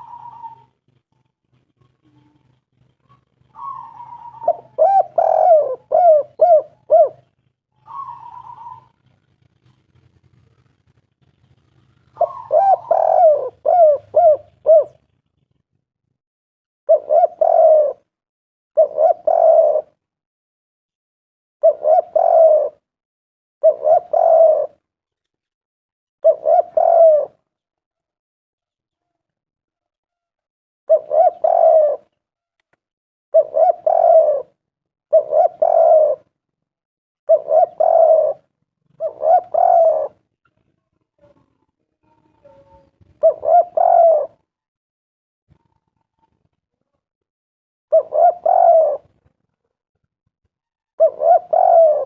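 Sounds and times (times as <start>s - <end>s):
dove cooing: 0.0s - 15.6s, 16.9s - 18.1s, 18.8s - 20.0s, 21.6s - 22.9s, 23.6s - 24.8s, 26.2s - 27.6s, 30.9s - 32.2s, 33.3s - 36.4s, 37.3s - 40.3s, 41.2s - 44.5s, 47.9s - 49.5s, 50.9s - 52.0s.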